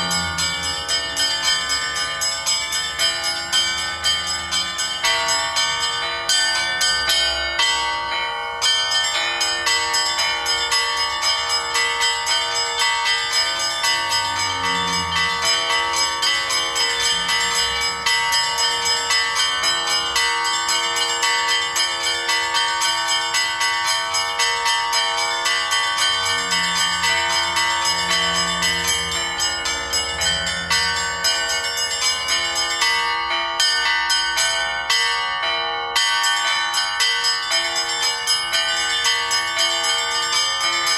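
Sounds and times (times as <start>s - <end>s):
bells ringing: 0.0s - 40.9s.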